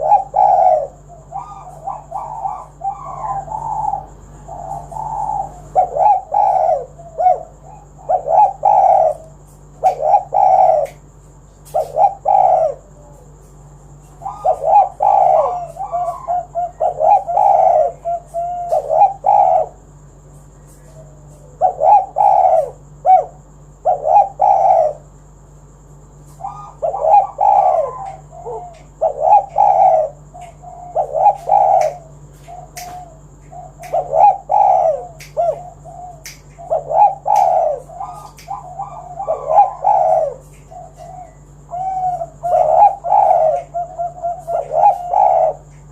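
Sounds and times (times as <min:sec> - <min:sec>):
dove cooing: 0:00.0 - 0:45.9.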